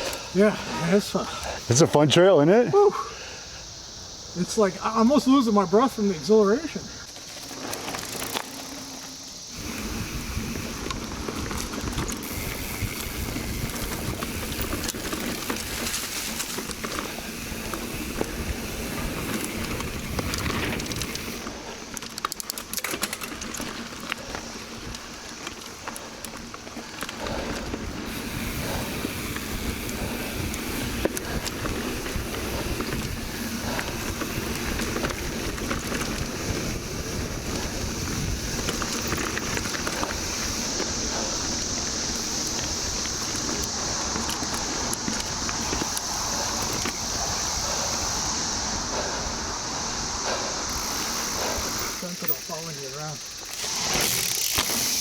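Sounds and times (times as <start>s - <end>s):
bike rattling clicks: 0.0s - 0.4s, 7.0s - 55.0s
cicadas chorus: 0.0s - 55.0s
bike tyre rumble: 3.0s - 55.0s
wind rushing over microphone: 9.5s - 21.4s, 27.2s - 52.0s.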